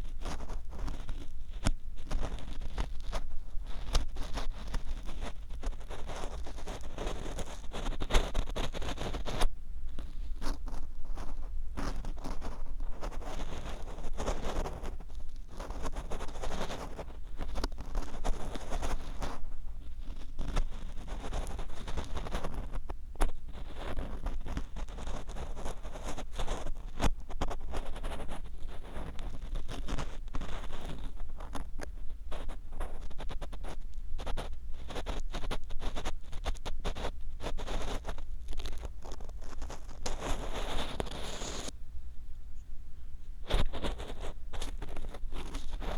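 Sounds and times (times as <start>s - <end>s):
ear pick scratching in ear: 0.0s - 41.7s, 43.4s - 45.9s
ear pick scraping in ear: 34.2s - 41.7s, 43.4s - 45.9s.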